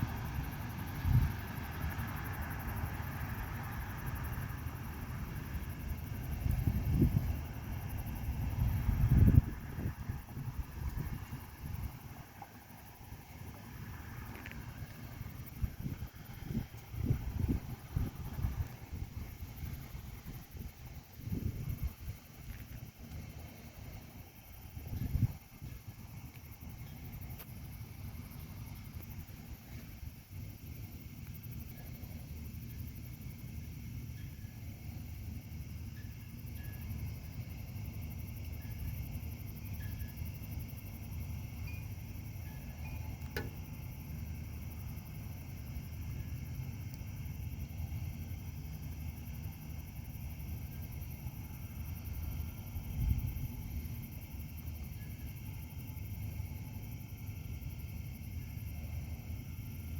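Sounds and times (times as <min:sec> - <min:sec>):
low wind rumble: 0:00.0 - 0:59.9
faint high tinkling notes: 0:41.6 - 0:43.3.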